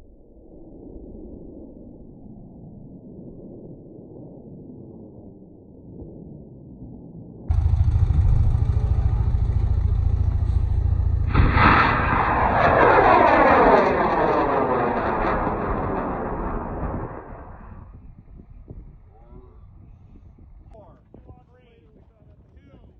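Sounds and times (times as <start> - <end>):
rocket motor roaring: 7.5 - 17.9.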